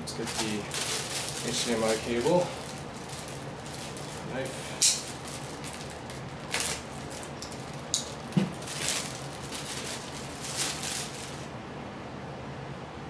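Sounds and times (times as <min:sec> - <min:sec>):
plastic rustling: 0:00.0 - 0:11.5.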